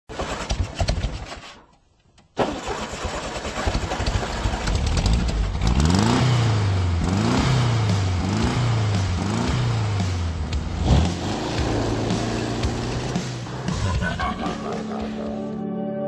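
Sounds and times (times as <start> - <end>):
car engine starting and revving: 2.4 - 14.7.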